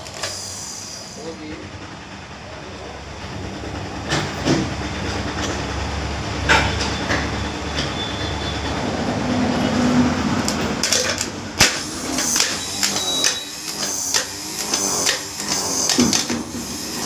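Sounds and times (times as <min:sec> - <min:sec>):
metal parts clicking and knocking: 0:10.4 - 0:16.4.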